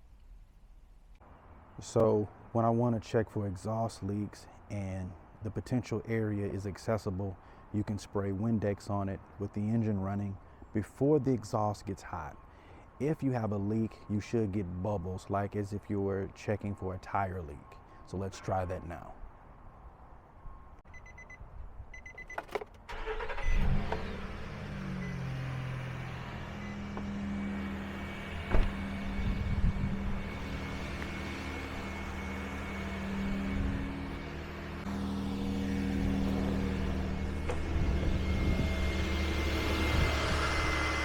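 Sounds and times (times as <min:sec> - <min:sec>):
car engine starting and idling: 0:22.5 - 0:41.0.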